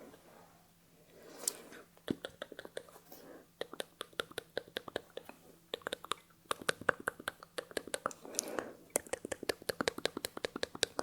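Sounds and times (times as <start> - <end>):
wet mouth clicks and smacks: 2.0 - 2.9, 3.6 - 11.0.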